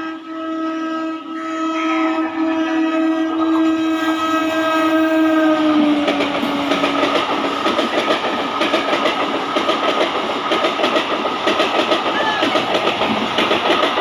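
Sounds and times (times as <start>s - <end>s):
train horn: 0.0s - 7.5s
train wheels clattering over rail joints: 5.8s - 14.0s.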